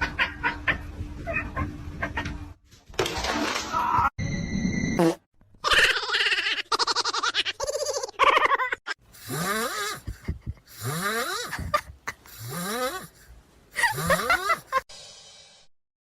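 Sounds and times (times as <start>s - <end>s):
person snoring: 9.1s - 14.8s.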